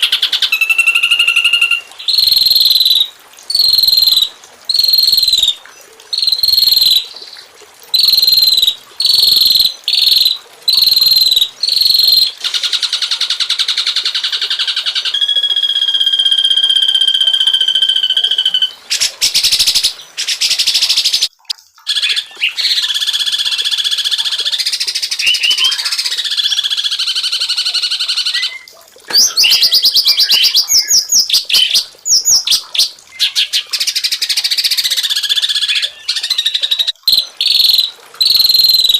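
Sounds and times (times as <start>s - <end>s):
songbird calls and songs: 0.0s - 5.6s, 6.2s - 7.4s, 8.0s - 12.3s, 15.0s - 38.9s.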